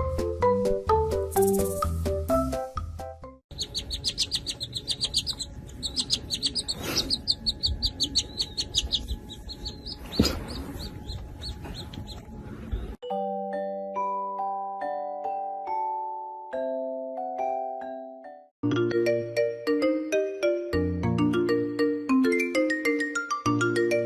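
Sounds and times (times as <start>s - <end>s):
small bird chirping rapidly: 3.5s - 12.2s.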